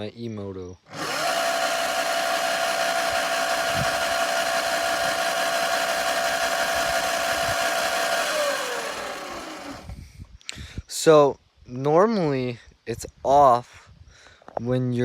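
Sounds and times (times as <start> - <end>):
electric motor whining: 0.9 - 10.0.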